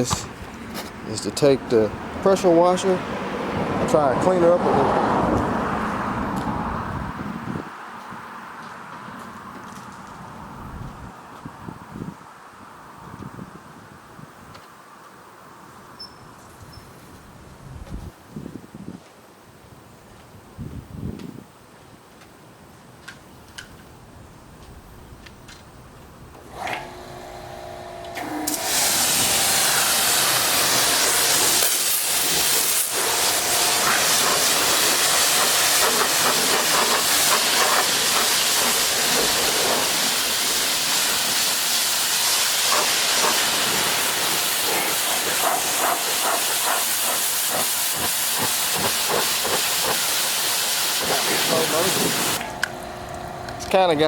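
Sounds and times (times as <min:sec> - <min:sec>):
pump humming: 0:26.4 - 0:35.7, 0:50.8 - 0:54.0
pressure washer spraying water: 0:26.5 - 0:54.0.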